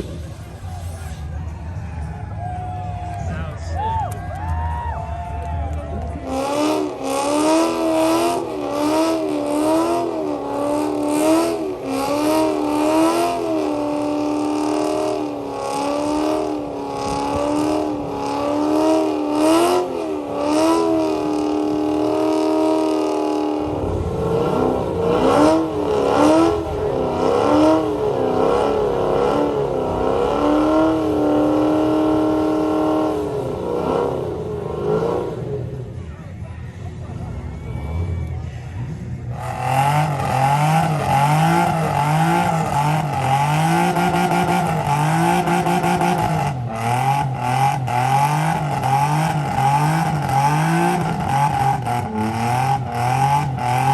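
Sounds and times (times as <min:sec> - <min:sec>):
deep rumble: 0:00.0 - 0:06.5, 0:23.3 - 0:31.7
car engine revving high: 0:06.0 - 0:36.0, 0:39.3 - 0:53.9.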